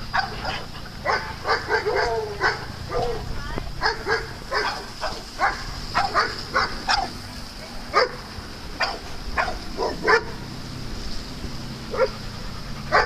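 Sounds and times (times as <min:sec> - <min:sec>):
steady high hiss: 0:00.0 - 0:12.9
dog barking: 0:00.1 - 0:07.2, 0:07.9 - 0:08.2, 0:08.8 - 0:10.4, 0:11.9 - 0:12.2.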